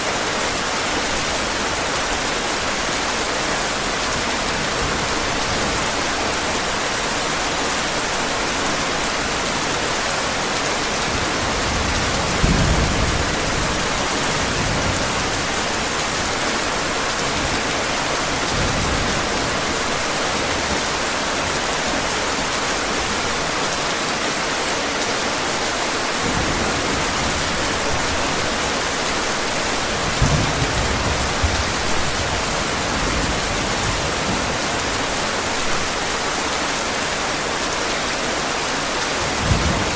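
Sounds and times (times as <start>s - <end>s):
heavy rain: 0.0s - 39.9s
low rumbles of thunder: 11.2s - 15.4s, 29.8s - 34.6s.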